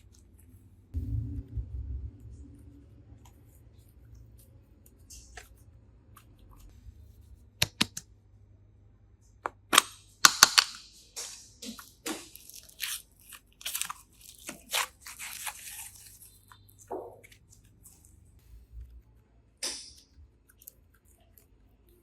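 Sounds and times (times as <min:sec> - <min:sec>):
crackling crunching noises: 0:11.6 - 0:19.4.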